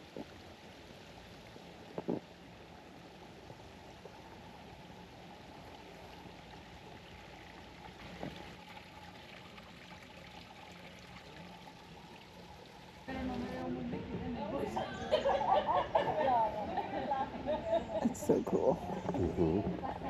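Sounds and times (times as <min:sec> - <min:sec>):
trickle of running water: 0:00.0 - 0:13.7.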